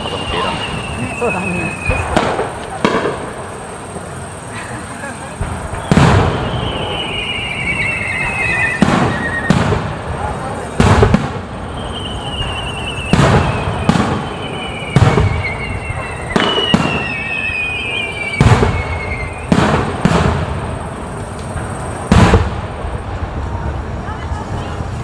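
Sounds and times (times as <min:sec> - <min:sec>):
high wavering whistle: 0:00.0 - 0:02.6, 0:05.0 - 0:09.6, 0:11.6 - 0:20.0
fireworks bursting: 0:00.0 - 0:25.0.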